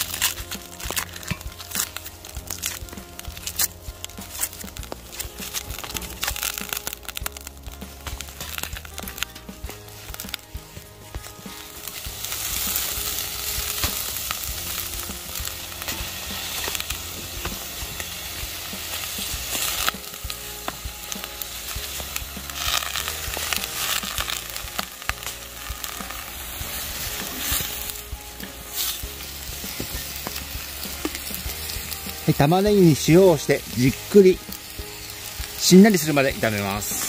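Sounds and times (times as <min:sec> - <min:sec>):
onions sizzling: 0:00.0 - 0:37.0
spatula scraping and tapping pot: 0:00.2 - 0:06.4.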